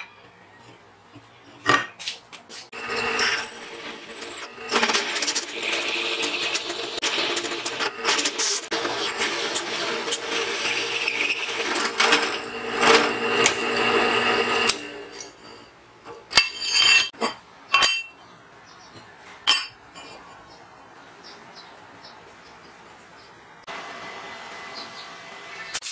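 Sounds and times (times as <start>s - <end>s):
drill press motor hum: 2.8s - 15.2s
hole saw grinding metal: 2.8s - 15.7s.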